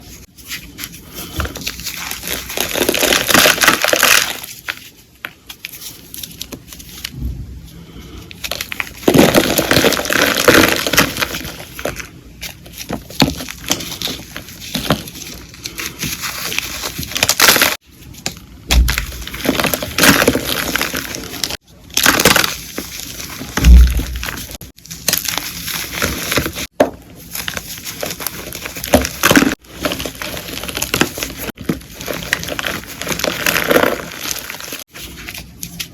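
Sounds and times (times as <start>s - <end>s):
chalk crunching and crumbling: 0.0s - 7.2s, 7.8s - 35.9s
dull thumps: 23.6s - 24.5s.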